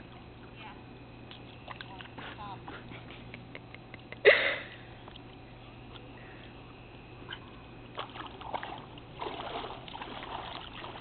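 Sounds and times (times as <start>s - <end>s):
water splashing and sloshing: 7.2s - 11.0s.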